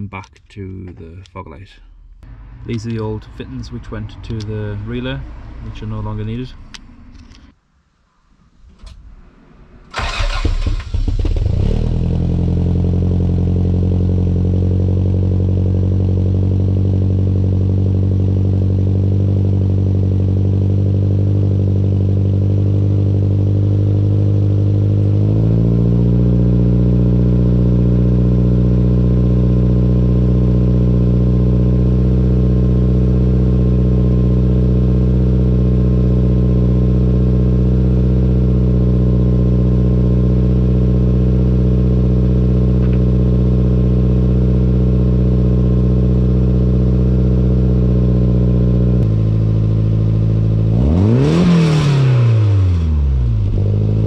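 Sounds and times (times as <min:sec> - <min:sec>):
car engine idling: 0:00.1 - 0:07.4, 0:08.5 - 0:51.5
car engine cranking: 0:09.8 - 0:12.6.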